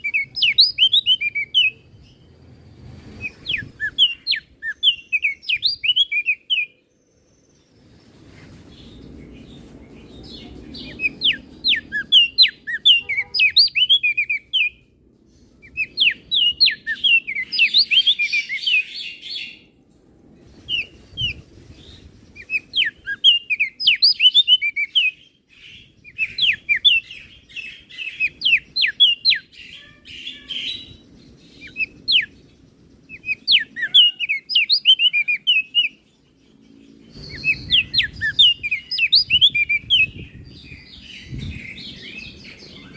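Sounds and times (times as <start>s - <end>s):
bird chirping sharp high notes: 10.1s - 14.8s.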